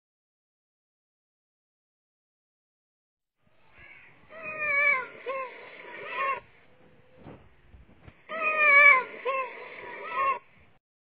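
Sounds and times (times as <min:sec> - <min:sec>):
lemurs meowing calls: 0:03.8 - 0:06.6, 0:08.3 - 0:10.5.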